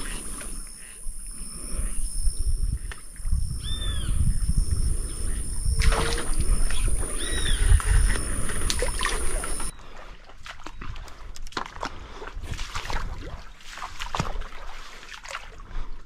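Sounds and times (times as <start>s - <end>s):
bird calls: 0.0s - 9.8s
light water sounds: 5.8s - 16.0s.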